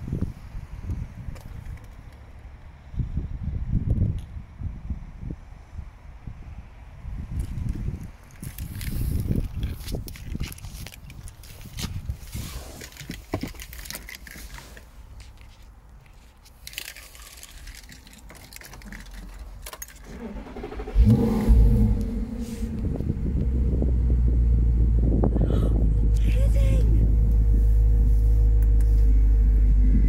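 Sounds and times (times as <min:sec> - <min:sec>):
rustling: 0:08.3 - 0:20.9
car engine starting and idling: 0:17.6 - 0:30.0.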